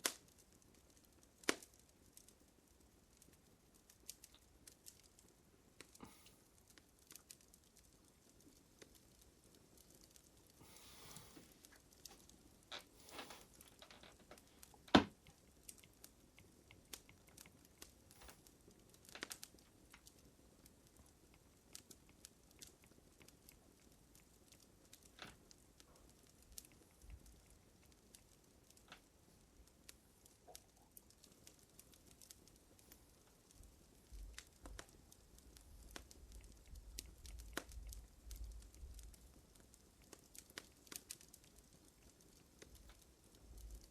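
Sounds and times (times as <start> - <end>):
wood fire crackling: 0.0 - 43.9.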